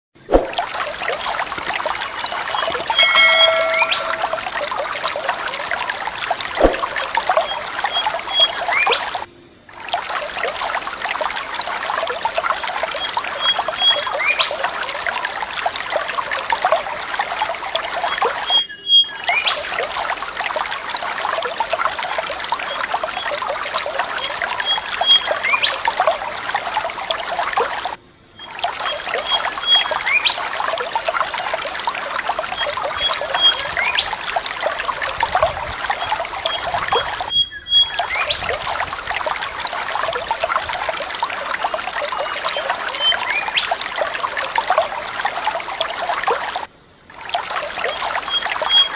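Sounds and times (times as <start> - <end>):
water trickling: 0.2 - 48.9
short high pips: 2.7 - 4.6.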